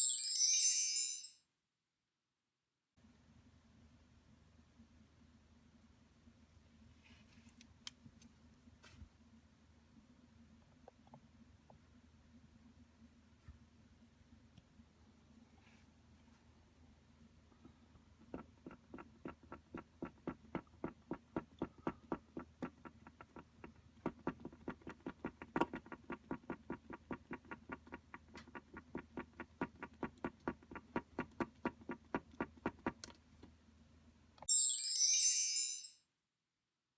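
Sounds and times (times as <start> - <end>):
faint steady hum: 3.0 - 24.2.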